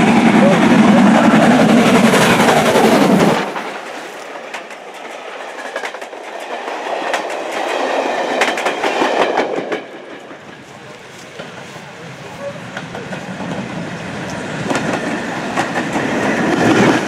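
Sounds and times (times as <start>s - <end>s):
loud rushing noise: 0.0s - 4.4s
train wheels clicking on rail joints: 0.0s - 17.0s.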